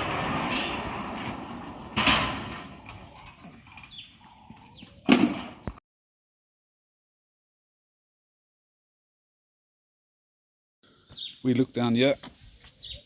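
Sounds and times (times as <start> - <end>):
steel sliding gate rolling: 0.0 - 4.4.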